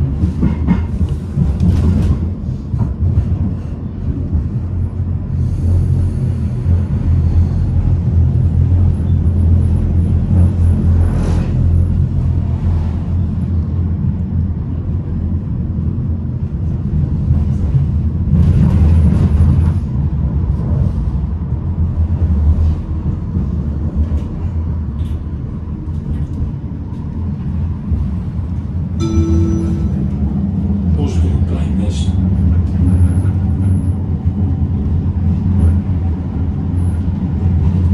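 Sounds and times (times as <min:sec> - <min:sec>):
tram wheels and motors rumbling: 0:00.0 - 0:37.9
short chime: 0:29.0 - 0:30.4.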